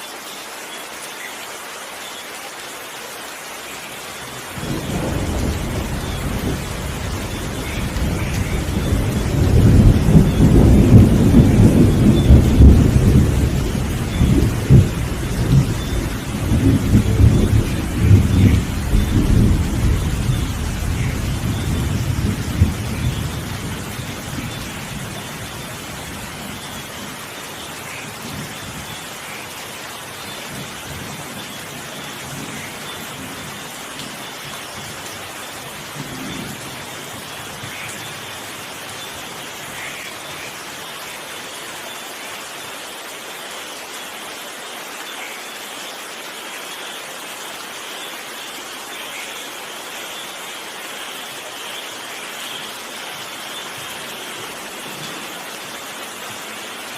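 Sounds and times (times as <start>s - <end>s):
steady rain falling: 0.0s - 56.9s
thunder rolling: 4.6s - 24.2s.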